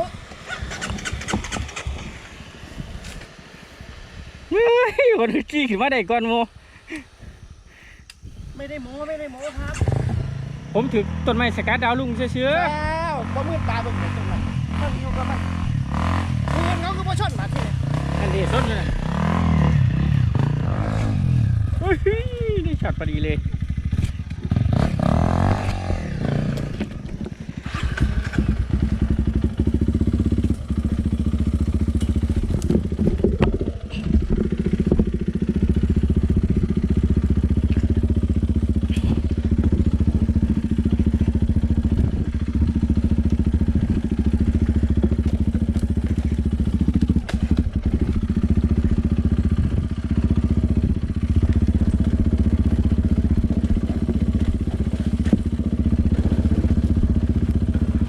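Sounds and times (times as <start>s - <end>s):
dirt bike engine running: 0.0s - 3.4s, 7.3s - 58.0s.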